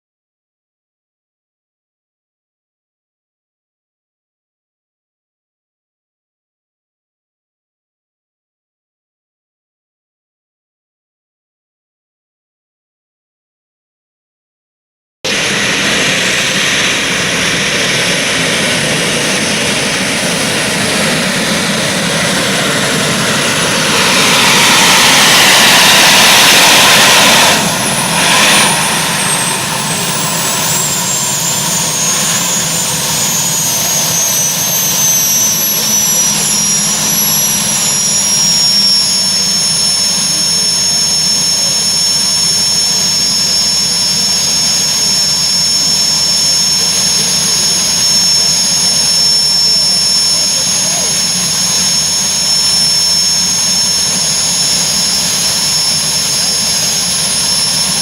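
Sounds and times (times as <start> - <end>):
tractor engine running hard: 15.3 - 39.8, 46.7 - 58.0
high whine falling in pitch: 15.3 - 58.0.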